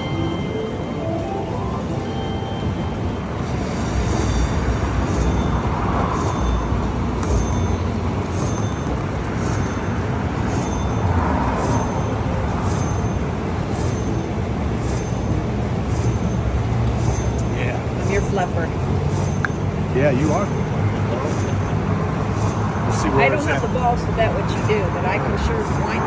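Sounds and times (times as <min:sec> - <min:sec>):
high electronic chimes: 0:00.0 - 0:24.7
busy casino din: 0:00.0 - 0:26.0.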